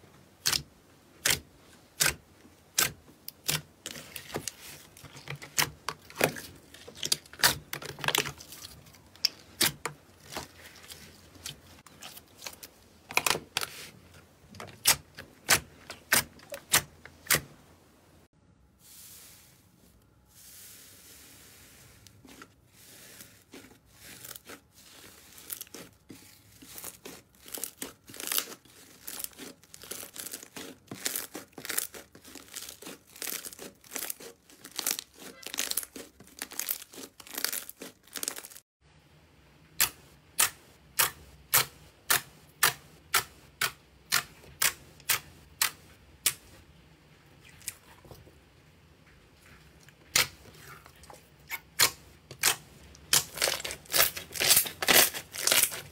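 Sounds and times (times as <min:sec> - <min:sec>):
slime crackling by hand: 0:00.4 - 0:17.5, 0:20.6 - 0:38.6, 0:50.1 - 0:55.9.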